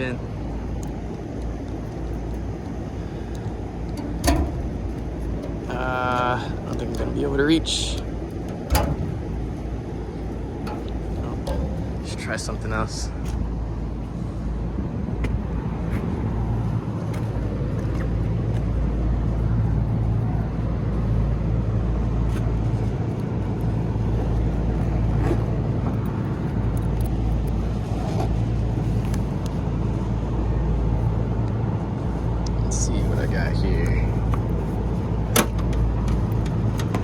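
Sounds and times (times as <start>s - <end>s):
hvac equipment humming: 0.0s - 27.8s.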